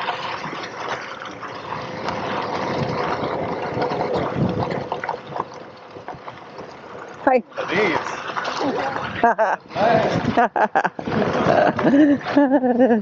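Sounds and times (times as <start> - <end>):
tyre and wind noise: 0.0 - 6.6, 7.6 - 13.0.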